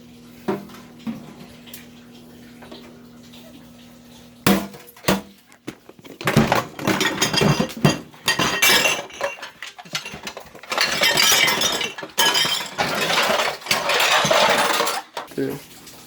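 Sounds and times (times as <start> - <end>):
clatter of hard objects: 4.5 - 15.6.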